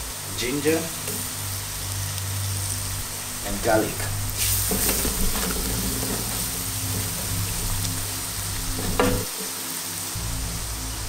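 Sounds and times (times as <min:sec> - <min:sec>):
onions sizzling in hot oil: 0:00.0 - 0:11.0
spatula stirring: 0:04.4 - 0:09.5
spatula knocking against pan: 0:08.8 - 0:09.4.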